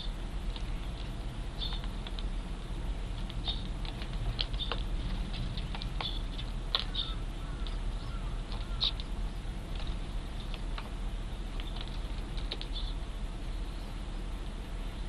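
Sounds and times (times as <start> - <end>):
sparrows chirping: 0.0 - 15.0
steady low rumble: 0.0 - 15.0.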